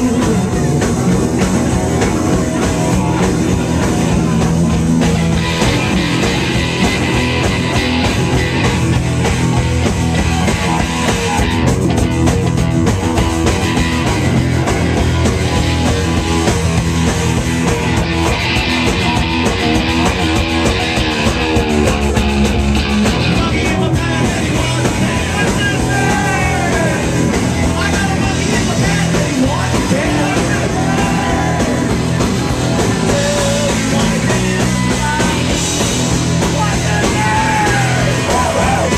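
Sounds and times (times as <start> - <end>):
drums: 0.0 - 38.9
electric guitar: 0.0 - 38.9
person singing: 23.2 - 32.0, 32.9 - 35.6.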